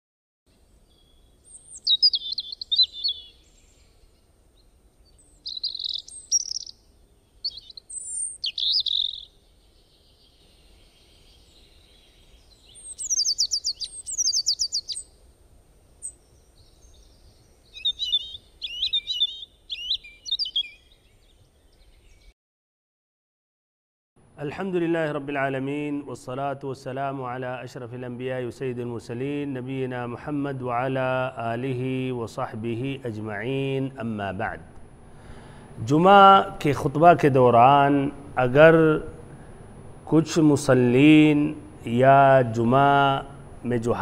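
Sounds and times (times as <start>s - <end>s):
birds chirping: 0.8s - 22.4s.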